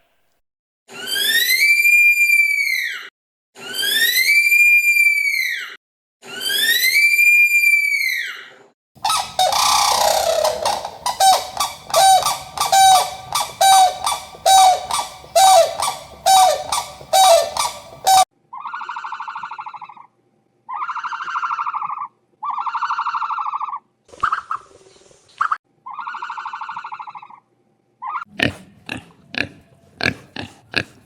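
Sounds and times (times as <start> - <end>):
animal long buzzing calls: 9.0 - 18.2
animal short calls: 9.0 - 18.2.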